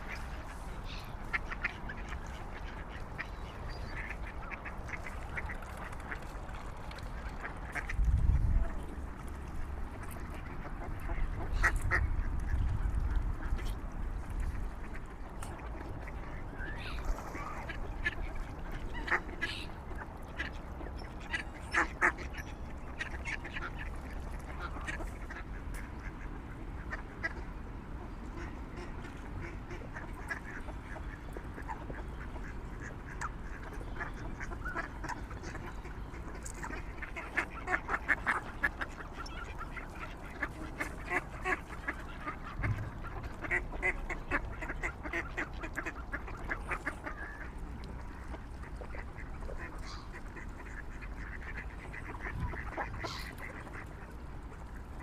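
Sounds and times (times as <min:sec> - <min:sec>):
waterfowl quacking: 0:00.0 - 0:27.5, 0:28.3 - 0:55.0.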